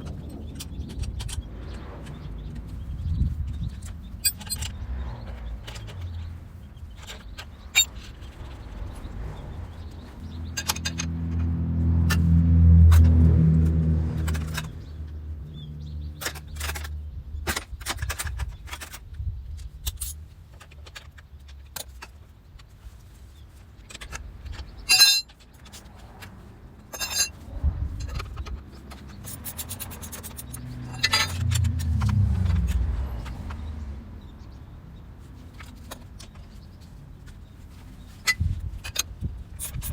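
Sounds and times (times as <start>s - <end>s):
low vehicle rumble: 0.0s - 19.8s, 23.8s - 39.9s
metal tools clinking and scraping: 3.7s - 12.3s, 14.2s - 14.9s, 23.8s - 33.6s.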